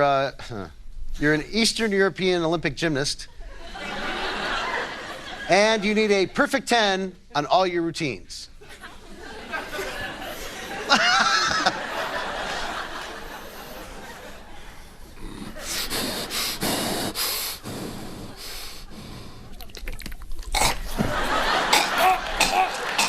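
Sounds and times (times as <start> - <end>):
audience laughing: 3.5 - 6.1, 8.6 - 14.9, 20.9 - 23.0.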